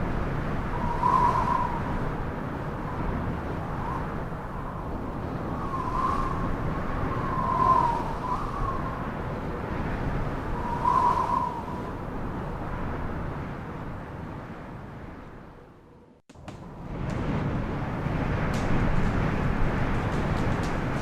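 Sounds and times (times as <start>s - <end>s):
strong storm wind: 0.0s - 21.0s
thin wavering whistle: 0.8s - 1.9s.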